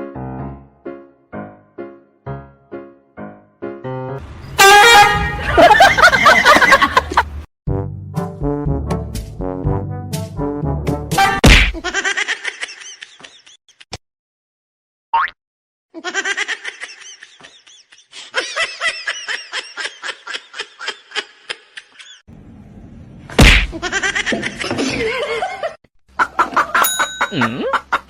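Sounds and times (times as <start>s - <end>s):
people laughing: 5.3s - 7.3s, 23.9s - 25.8s, 27.3s - 28.0s.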